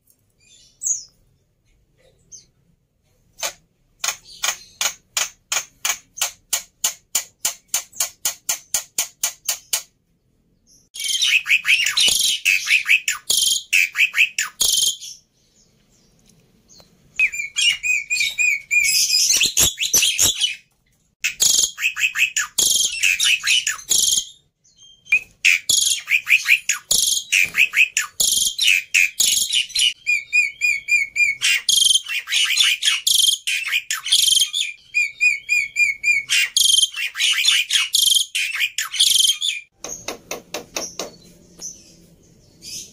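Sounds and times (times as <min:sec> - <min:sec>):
bird singing: 0:10.6 - 0:42.9.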